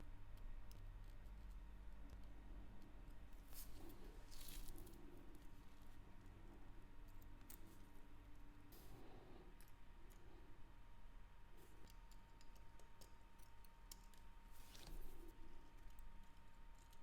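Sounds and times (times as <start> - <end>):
low steady hum: 0.0 - 17.0
small metal tools clicking: 11.7 - 14.4.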